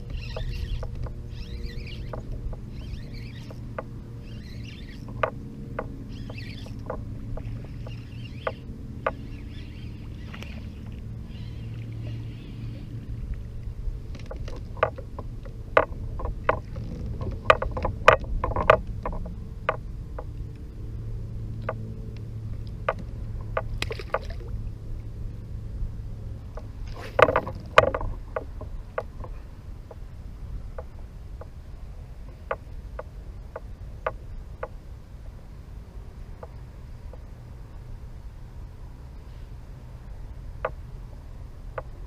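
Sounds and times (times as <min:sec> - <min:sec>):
low steady rumble: 0:00.0 - 0:42.0
gear knocking and clicking: 0:00.1 - 0:10.7, 0:14.1 - 0:20.3, 0:26.5 - 0:30.0.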